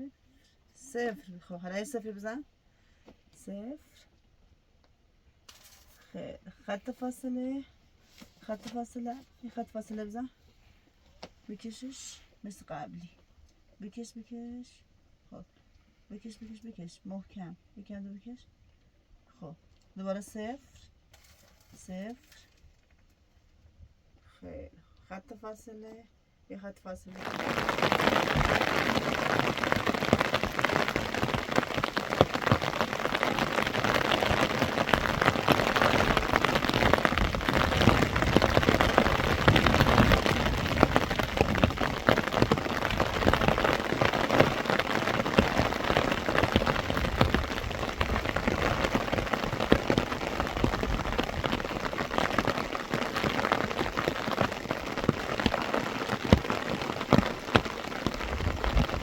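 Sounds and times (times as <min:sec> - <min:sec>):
heavy rain: 0:27.1 - 0:59.0.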